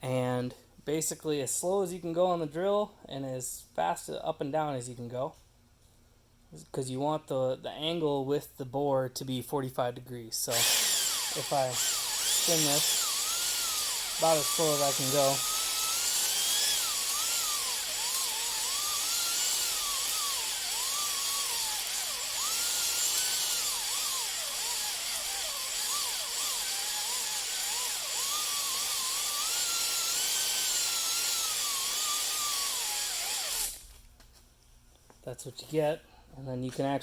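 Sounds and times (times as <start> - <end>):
electric drill motor whine: 10.5 - 33.9.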